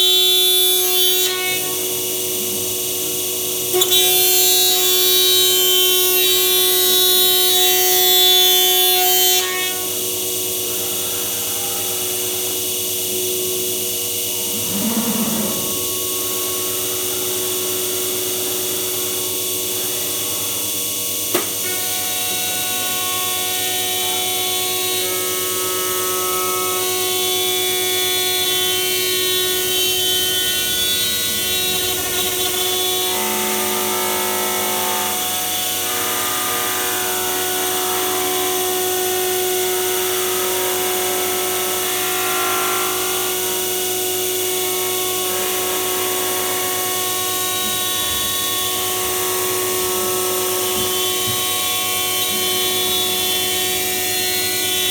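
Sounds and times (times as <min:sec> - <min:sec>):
machine spindle whine: 0:09.8 - 0:40.1, 0:46.2 - 0:54.9.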